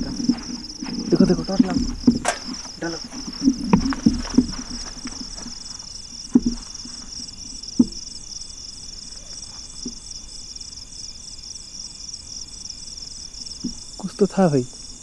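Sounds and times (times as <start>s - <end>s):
sharp knocks: 0.0s - 5.7s
insects chirring: 0.0s - 15.0s.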